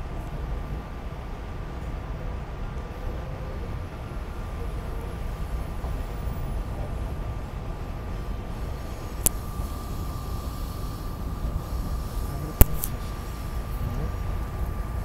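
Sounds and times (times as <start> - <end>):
faint steady hum: 0.0 - 15.0
sharp click: 9.2 - 9.5, 12.6 - 13.0.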